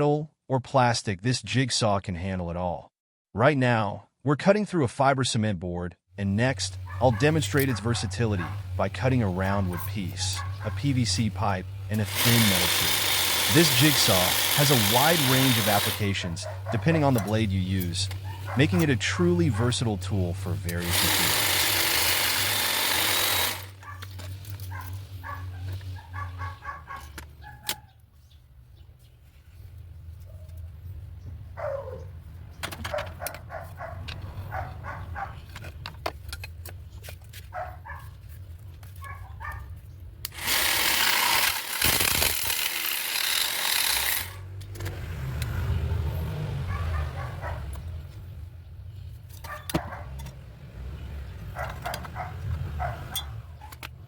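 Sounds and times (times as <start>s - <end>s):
cordless jigsaw cutting: 6.7s - 25.6s, 40.3s - 44.6s.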